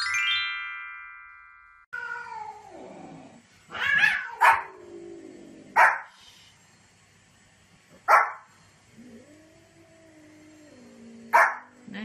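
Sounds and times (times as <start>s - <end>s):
cat yowling: 2.0s - 2.8s, 3.7s - 4.8s
dog barking: 4.2s - 4.7s, 5.8s - 6.1s, 8.0s - 8.5s, 11.3s - 11.7s.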